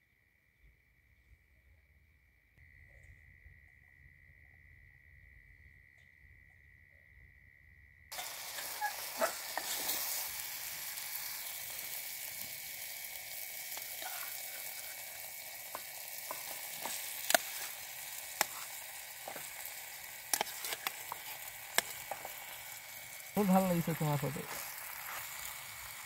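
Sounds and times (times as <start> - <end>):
sauce sizzling in a pot: 8.1 - 26.0.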